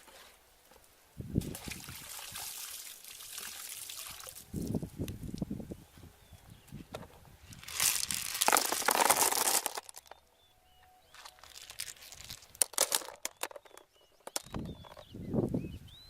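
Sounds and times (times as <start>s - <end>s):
rustling and crinkling handling noise: 6.8s - 15.1s.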